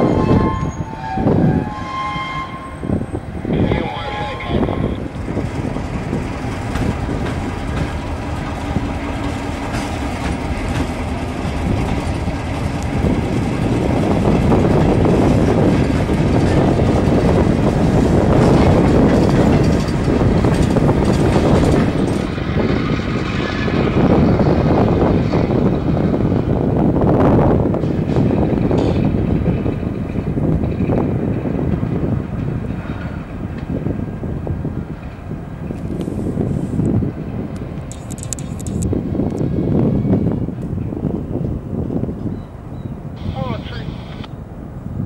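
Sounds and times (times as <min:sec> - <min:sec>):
diesel locomotive hauling freight: 0:00.0 - 0:45.0
wheels clattering over rails: 0:05.2 - 0:26.1.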